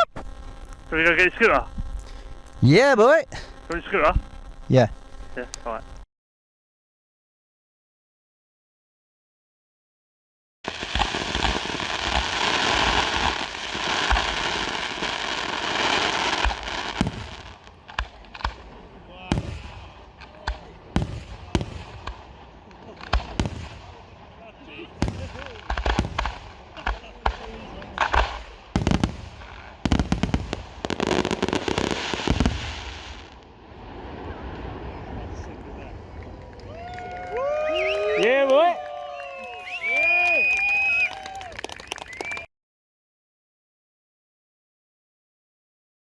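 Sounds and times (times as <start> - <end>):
fireworks crackling: 0.0 - 6.1, 10.7 - 42.5
low firework thumps: 16.4 - 18.7, 19.3 - 22.2, 23.0 - 23.9, 25.0 - 33.2.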